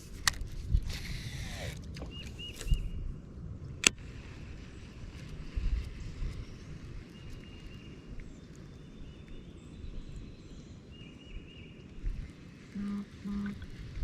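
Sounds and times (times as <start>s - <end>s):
wind rumbling on microphone: 0.0s - 14.0s
faint bird chirps: 12.8s - 13.6s
short low hums: 12.8s - 14.0s.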